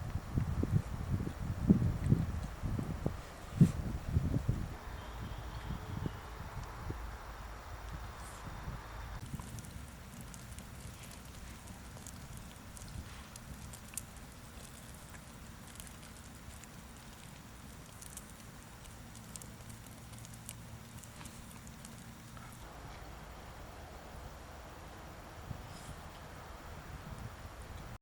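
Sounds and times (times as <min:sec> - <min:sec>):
campfire crackling: 0:06.6 - 0:27.6.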